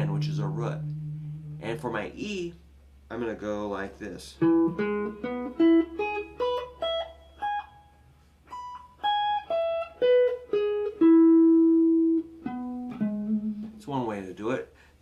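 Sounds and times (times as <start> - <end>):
acoustic guitar arpeggio: 0.0 - 2.4.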